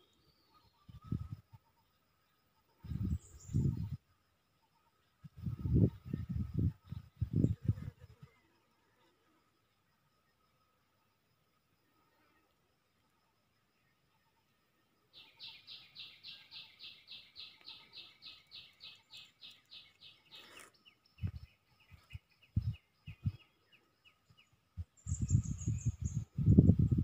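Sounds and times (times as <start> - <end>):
wild birds singing: 0.0 - 27.0
wind rumbling on microphone: 0.8 - 1.6, 2.8 - 4.1, 5.2 - 8.4, 21.1 - 23.6, 24.2 - 27.0.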